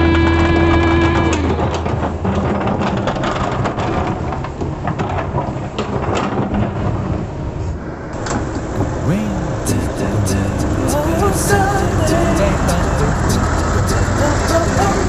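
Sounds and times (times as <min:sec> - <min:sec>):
excavator engine rumbling: 0:00.0 - 0:15.0
clatter of loose material: 0:01.4 - 0:06.9.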